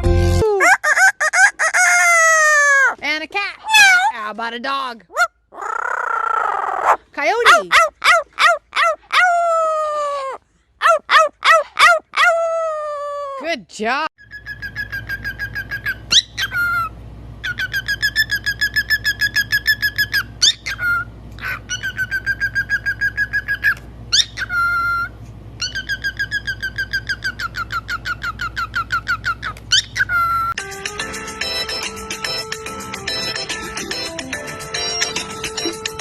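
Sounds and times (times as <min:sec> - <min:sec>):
parrot whistling trills: 0:14.2 - 0:30.6.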